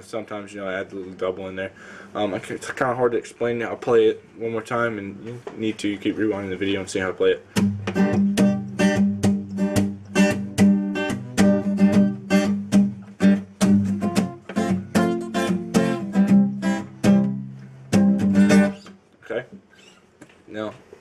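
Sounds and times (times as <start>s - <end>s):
acoustic guitar strumming: 7.4s - 19.0s.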